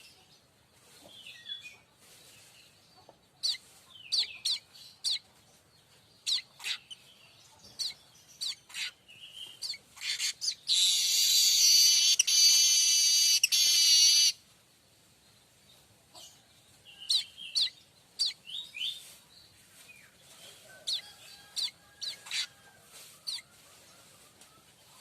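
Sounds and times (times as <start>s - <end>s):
bird chirps and rasping trill: 7.8s - 14.4s.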